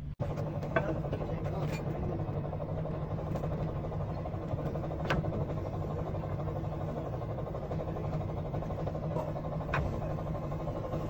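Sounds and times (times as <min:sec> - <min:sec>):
motor humming: 0:00.2 - 0:11.0.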